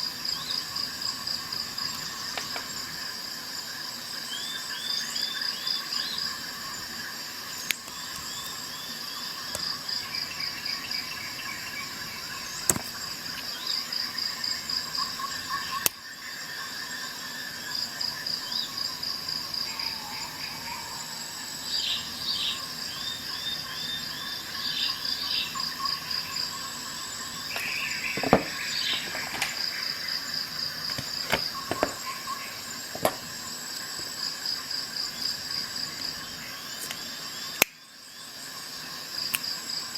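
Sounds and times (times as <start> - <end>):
crickets trilling: 0.0 - 39.9
birds chirping: 21.7 - 34.2.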